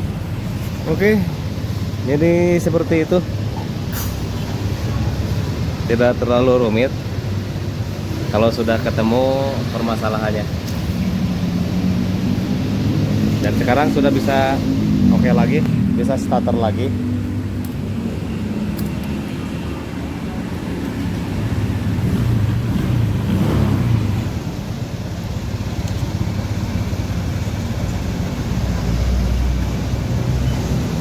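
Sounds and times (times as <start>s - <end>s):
scooter engine idling: 0.0s - 11.8s, 24.3s - 28.9s.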